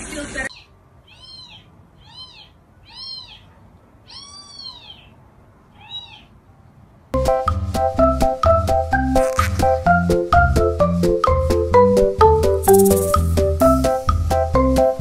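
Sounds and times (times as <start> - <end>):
cat meowing: 0.5 - 6.4.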